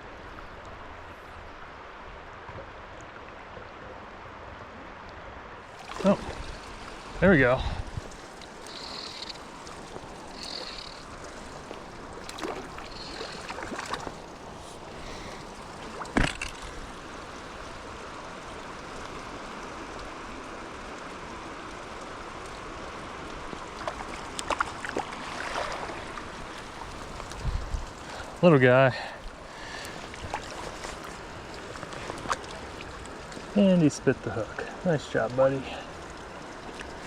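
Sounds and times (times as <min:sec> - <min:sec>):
creek water running: 0:05.6 - 0:37.0
sharp knocks and splashes: 0:05.8 - 0:07.2, 0:08.1 - 0:17.6, 0:23.8 - 0:28.2, 0:29.6 - 0:33.4.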